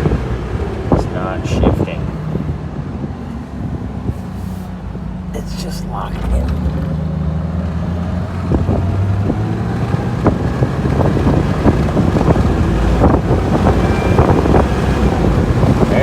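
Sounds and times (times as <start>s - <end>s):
car engine pulling hard: 0.0s - 16.0s
wind buffeting microphone: 6.4s - 16.0s.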